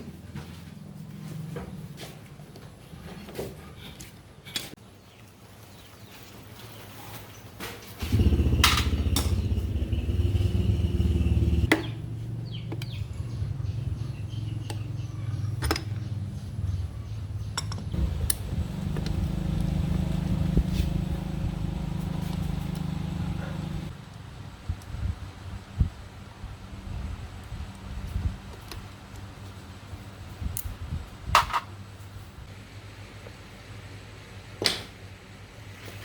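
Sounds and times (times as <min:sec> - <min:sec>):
small motorcycle engine running: 0:08.0 - 0:15.0, 0:18.0 - 0:24.0.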